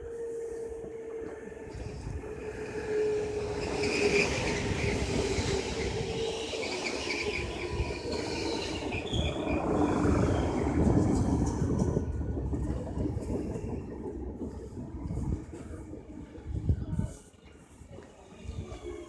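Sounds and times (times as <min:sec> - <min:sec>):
train rumbling: 0:00.0 - 0:17.2
train whine: 0:00.0 - 0:17.2
wheels and brakes squealing: 0:02.8 - 0:10.7.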